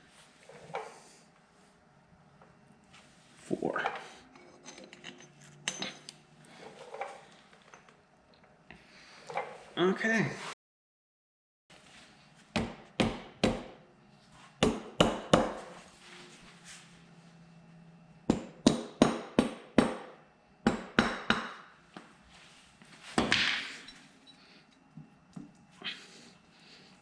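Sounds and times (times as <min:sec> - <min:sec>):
hammer tapping on metal: 0:20.7 - 0:21.6.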